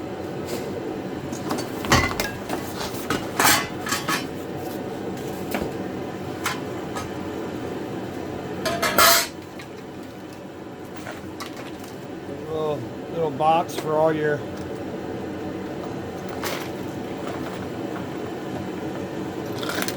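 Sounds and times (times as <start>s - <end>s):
metal parts clinking and clattering: 8.7s - 9.4s, 19.4s - 19.9s
sharp metal clanks: 8.7s - 9.4s.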